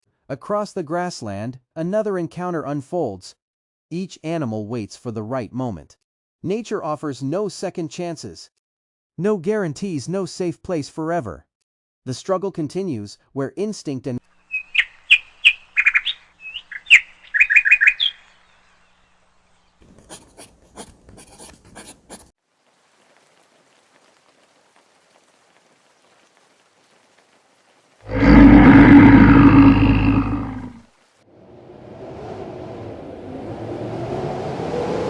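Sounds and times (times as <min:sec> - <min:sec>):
bird chirping: 0:14.4 - 0:19.8
deep animal roar: 0:28.1 - 0:30.8.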